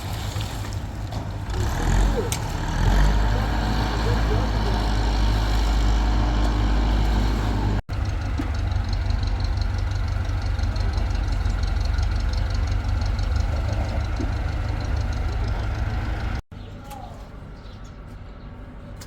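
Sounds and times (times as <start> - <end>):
machinery engine running: 1.3 - 16.4.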